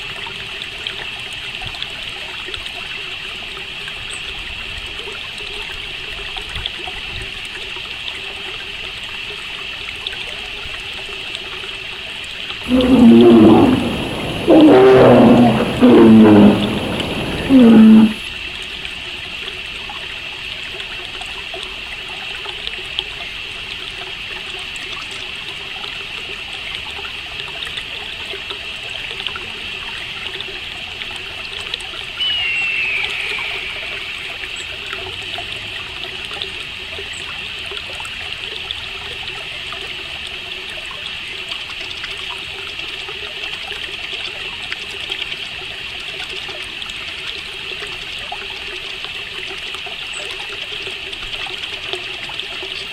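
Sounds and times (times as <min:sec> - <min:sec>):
trickling water: 0:00.0 - 0:52.9
crickets chirping: 0:12.7 - 0:18.2, 0:32.2 - 0:34.9
bird call falling in pitch: 0:32.2 - 0:34.9.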